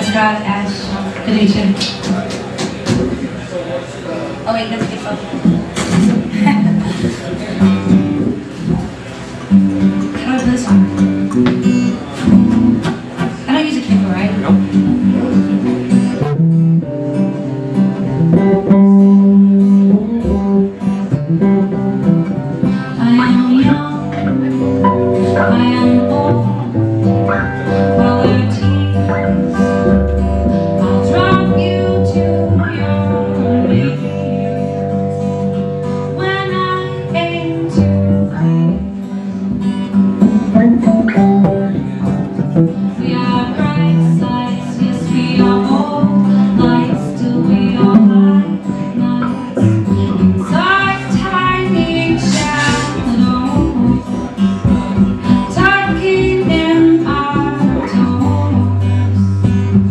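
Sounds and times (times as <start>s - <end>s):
acoustic guitar picked and strummed: 0.0s - 59.9s
low bass notes: 5.5s - 13.2s, 13.9s - 59.9s.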